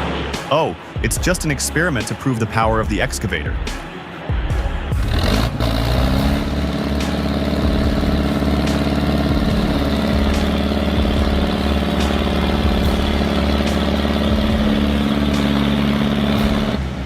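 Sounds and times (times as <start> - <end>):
vehicle engine running: 4.9 - 17.0.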